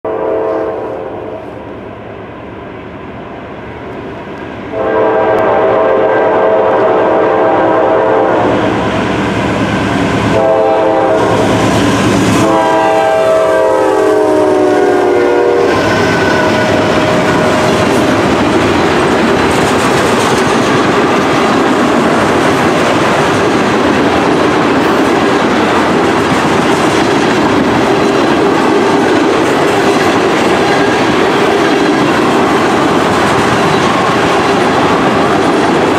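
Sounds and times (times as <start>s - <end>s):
locomotive horn blasts: 0.1s - 1.4s, 4.7s - 8.6s, 10.3s - 11.4s, 12.3s - 17.8s.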